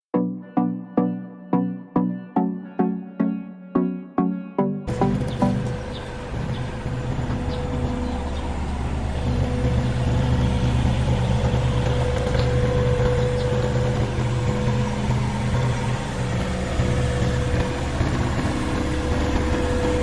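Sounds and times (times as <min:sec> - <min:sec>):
excavator diesel engine running: 0:04.8 - 0:20.0
steady high whine: 0:04.9 - 0:20.0.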